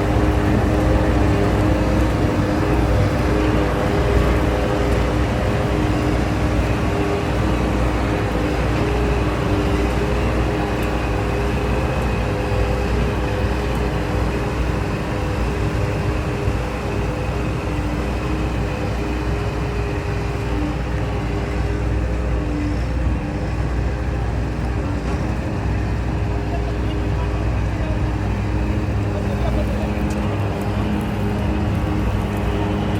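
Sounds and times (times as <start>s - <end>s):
combine harvester droning: 0.0s - 32.9s.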